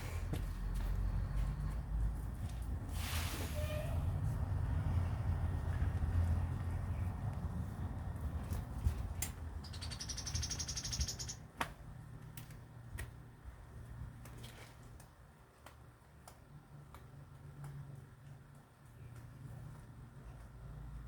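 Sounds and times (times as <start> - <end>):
small bird trilling: 9.6 - 11.4.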